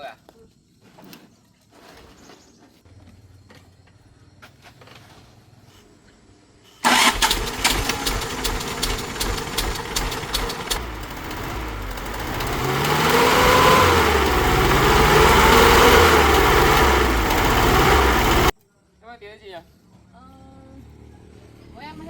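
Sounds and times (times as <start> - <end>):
car engine starting and running: 6.8 - 18.5.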